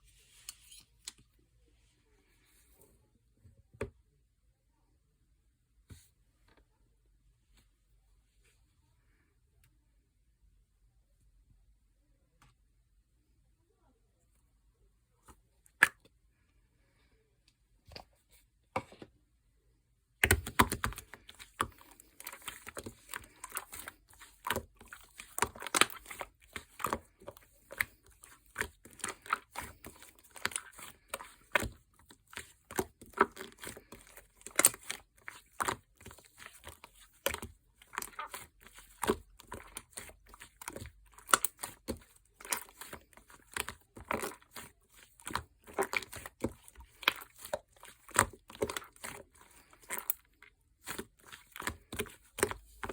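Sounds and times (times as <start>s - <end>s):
slime squishing with sticky clicks: 20.2s - 52.9s.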